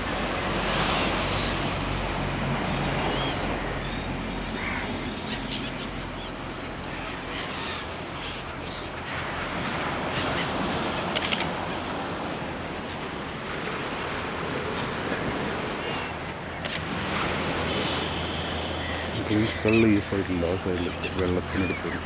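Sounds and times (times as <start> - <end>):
ocean surf washing: 0.0 - 22.0
faint bird calls: 2.7 - 9.3, 14.6 - 22.0.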